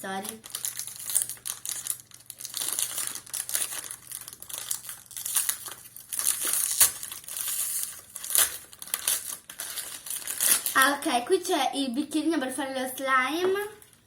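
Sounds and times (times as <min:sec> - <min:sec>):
plastic packet crinkling: 0:00.0 - 0:11.3.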